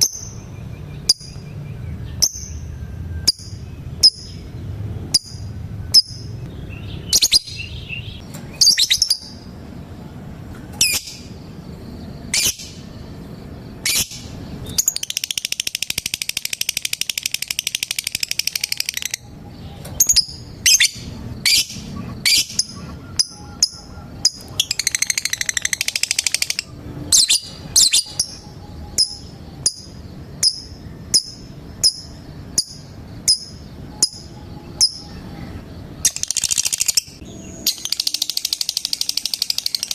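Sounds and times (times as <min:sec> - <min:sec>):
lovebird high chirps: 0:00.0 - 0:09.5, 0:10.8 - 0:13.0, 0:13.8 - 0:39.9
lovebird chattering trill: 0:05.1 - 0:09.5, 0:10.8 - 0:11.4, 0:12.2 - 0:12.9, 0:13.7 - 0:39.9.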